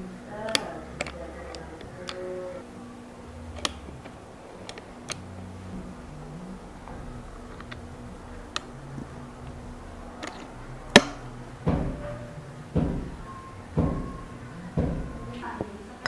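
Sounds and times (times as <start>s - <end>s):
light mechanical clicks: 3.4s - 5.3s.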